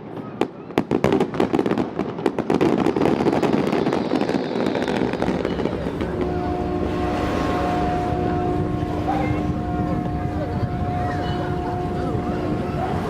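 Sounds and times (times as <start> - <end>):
fireworks cracks and bangs: 0.0 - 6.7
crackling rumble: 1.2 - 13.0
steady hum: 5.3 - 13.0.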